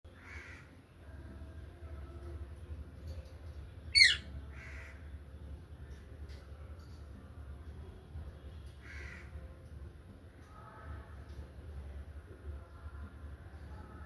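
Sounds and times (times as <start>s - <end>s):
parrot calling: 4.0s - 4.3s
parrot screeching: 4.0s - 4.3s.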